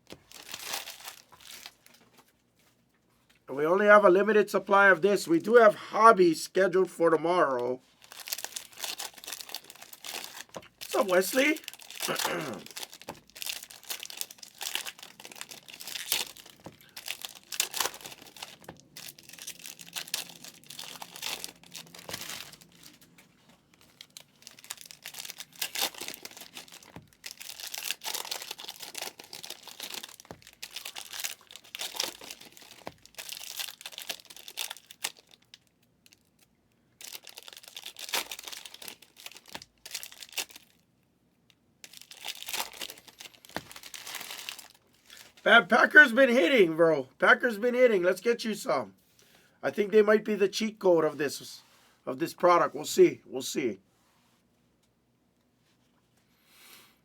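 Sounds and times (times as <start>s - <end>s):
card pack wrappers crinkling: 0.0s - 2.4s, 7.3s - 40.8s, 41.8s - 46.6s.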